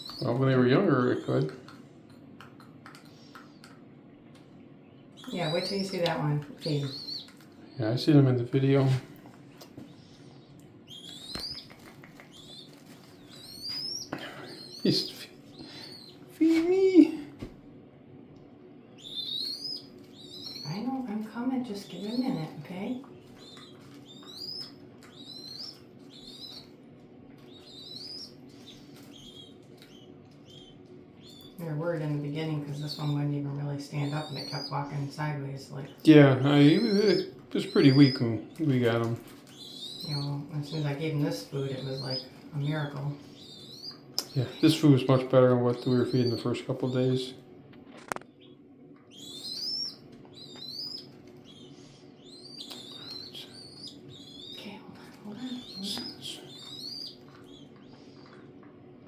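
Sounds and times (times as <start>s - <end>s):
young bird begging chirps: 0.0s - 0.3s, 5.0s - 7.4s, 9.9s - 16.5s, 19.0s - 26.8s, 27.5s - 31.7s, 32.7s - 33.2s, 33.9s - 35.2s, 35.9s - 44.9s, 45.8s - 47.0s, 48.4s - 54.7s, 55.3s - 58.4s
steady low hum: 0.0s - 59.0s.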